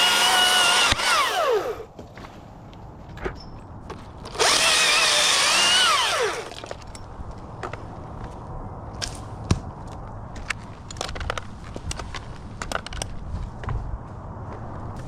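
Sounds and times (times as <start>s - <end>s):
chainsaw revving and winding down: 0.0s - 1.9s, 4.3s - 6.6s.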